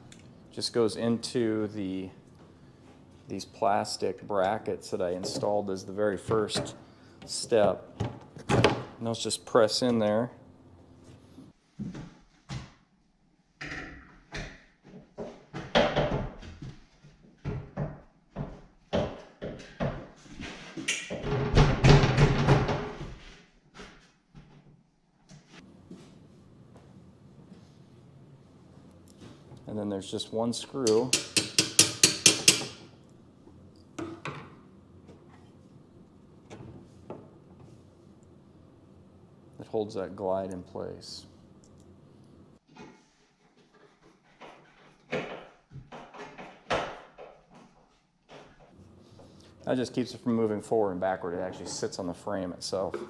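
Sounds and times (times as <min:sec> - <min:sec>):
hollow knocks and clunks: 0:06.2 - 0:09.0.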